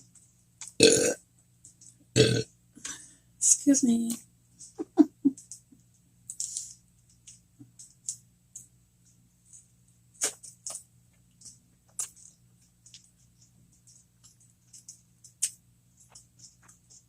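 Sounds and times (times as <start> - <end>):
mouth chewing clicks and smacks: 11.4 - 13.1.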